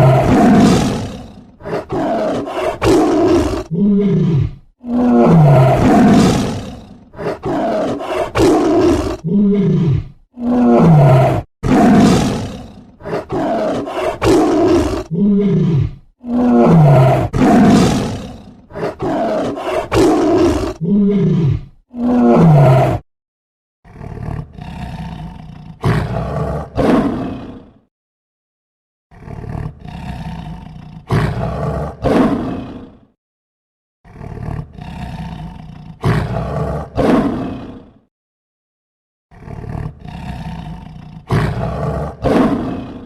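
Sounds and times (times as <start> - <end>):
big cat roaring: 0.0 - 23.0, 23.9 - 27.8, 29.1 - 33.1, 34.1 - 38.1, 39.3 - 43.0.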